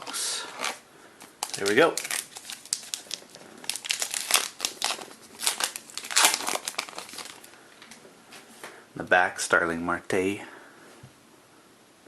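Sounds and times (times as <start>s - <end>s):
wrapper crackling and crumpling: 0.0s - 7.6s.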